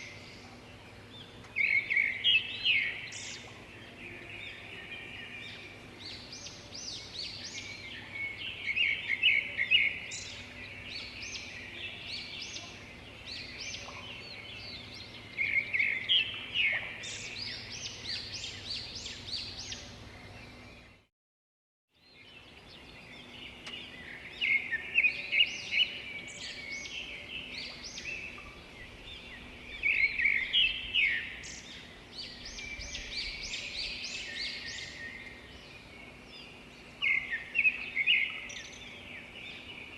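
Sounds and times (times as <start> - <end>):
birds singing and chirping: 0.0 - 21.1, 22.0 - 39.9
faint steady hum: 0.0 - 21.1.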